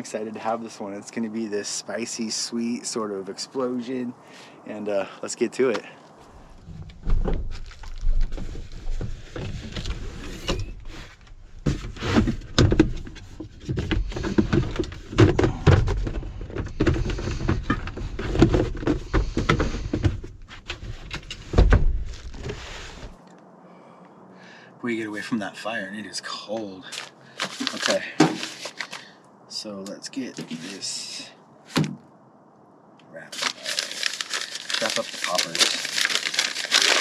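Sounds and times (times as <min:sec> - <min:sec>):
rustling: 0:06.0 - 0:23.2, 0:26.9 - 0:29.1, 0:33.2 - 0:37.0
irregular knocks and thuds: 0:11.6 - 0:22.6.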